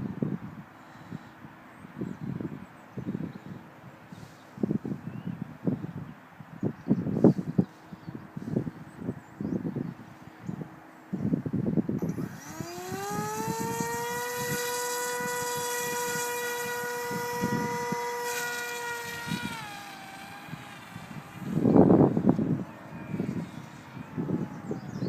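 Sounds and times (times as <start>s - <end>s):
wind buffeting microphone: 1.8s - 25.0s
model plane motor whine: 12.0s - 25.0s.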